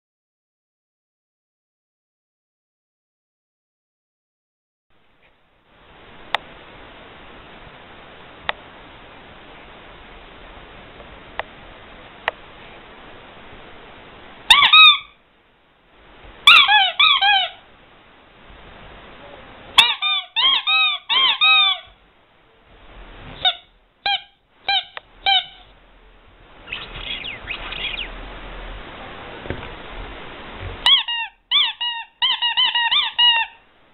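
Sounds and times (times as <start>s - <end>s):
rubber squeaky toy squeaking: 14.5s - 15.1s, 16.4s - 17.6s, 19.8s - 22.0s, 23.4s - 25.7s, 30.8s - 33.6s.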